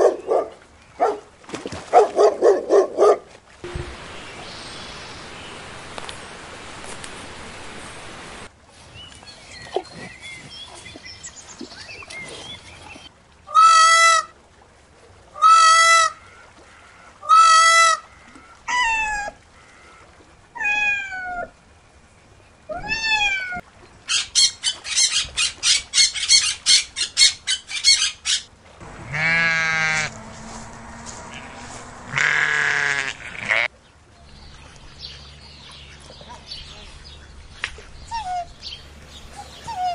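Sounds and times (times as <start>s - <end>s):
peacock calling: 24.1s - 33.7s
goat bleating: 28.8s - 33.7s
steady rushing noise: 29.9s - 33.4s.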